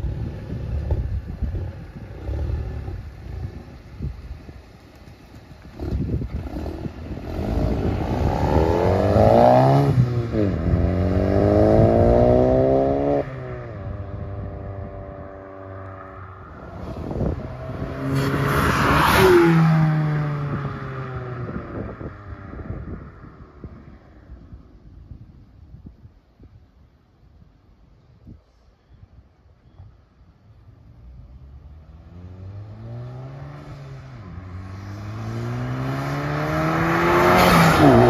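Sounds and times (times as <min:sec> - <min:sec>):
car engine accelerating hard: 0:05.7 - 0:22.8, 0:31.7 - 0:38.0
car passing by: 0:15.2 - 0:24.1, 0:31.7 - 0:38.0.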